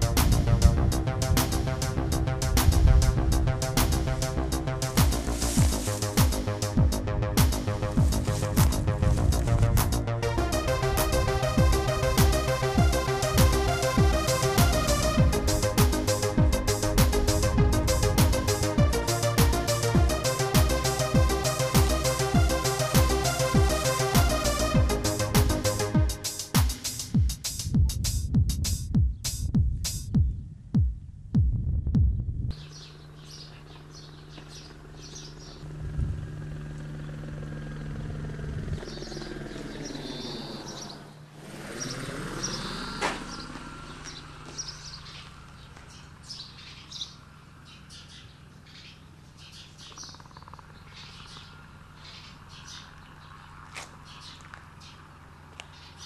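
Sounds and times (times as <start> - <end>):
electronic music: 0.0 - 28.0
small birds chirping: 0.0 - 28.0, 32.5 - 56.0
low steady hum: 30.6 - 41.4.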